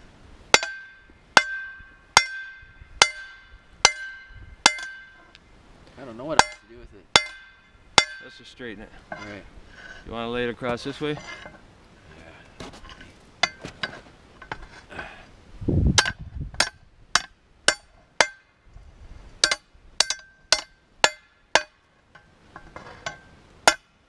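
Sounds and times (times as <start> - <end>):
hammer clinking on steel rod: 0.6 - 5.3, 6.3 - 8.4, 19.4 - 23.9.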